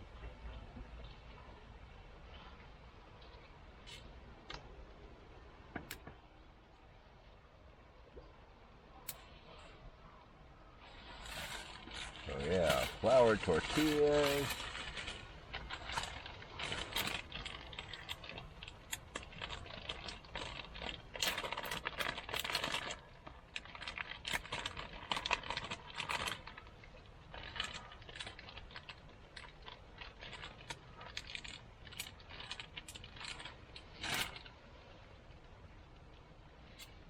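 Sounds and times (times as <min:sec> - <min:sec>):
food packaging crinkling: 0:10.8 - 0:37.0.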